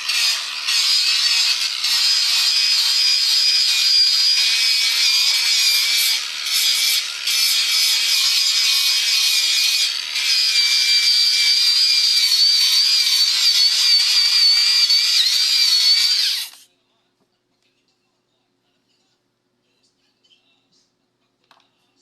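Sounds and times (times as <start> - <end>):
electric power tool whining: 0.0 - 16.6.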